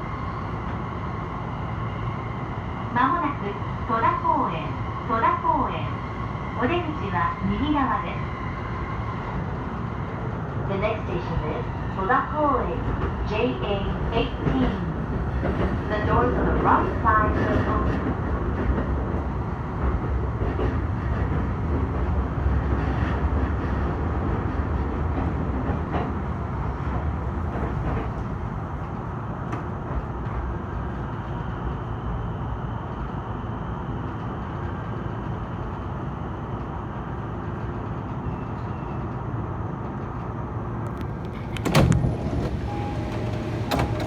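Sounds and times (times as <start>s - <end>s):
train rumble from inside: 0.0s - 44.0s
sliding doors opening: 40.9s - 44.0s.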